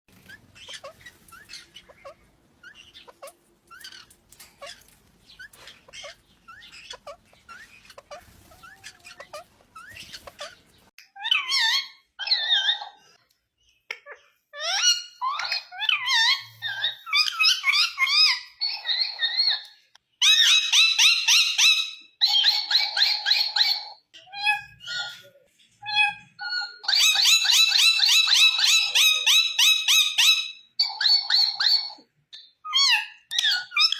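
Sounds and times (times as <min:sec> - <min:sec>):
parakeet calling: 0:00.1 - 0:12.9.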